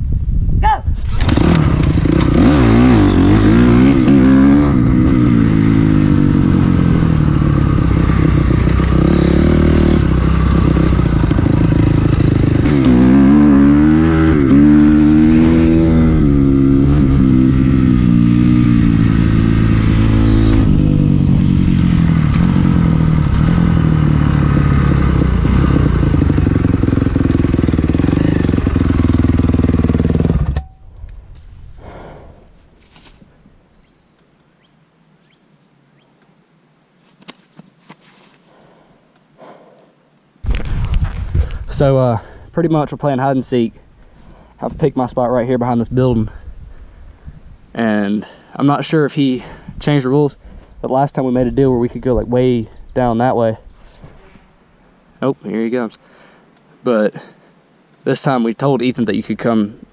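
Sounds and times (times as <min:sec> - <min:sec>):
dirt bike engines racing: 0:01.1 - 0:30.6.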